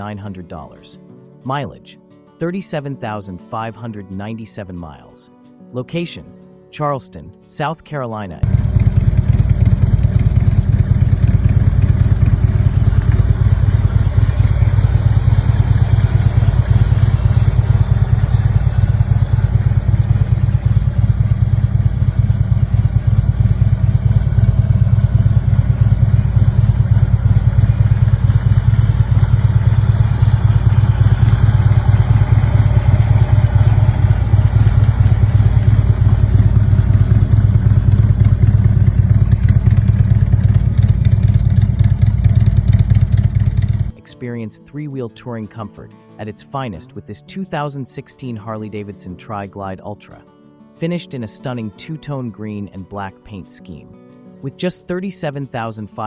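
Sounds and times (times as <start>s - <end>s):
motorcycle engine idling: 8.4s - 44.0s.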